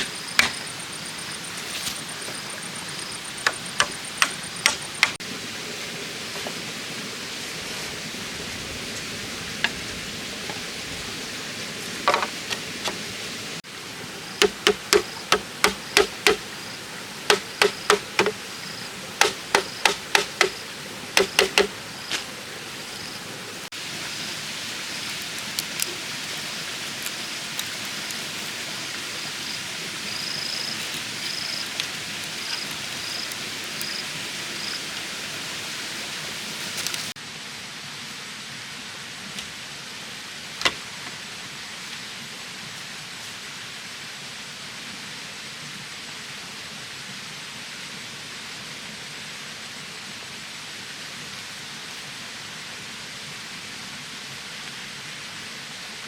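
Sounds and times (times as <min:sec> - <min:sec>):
sharp knocks and clicks: 0:00.0 - 0:00.7, 0:03.4 - 0:05.2, 0:14.4 - 0:16.4, 0:17.3 - 0:18.4, 0:19.2 - 0:20.6, 0:21.2 - 0:21.7
rain hissing: 0:00.0 - 0:45.2.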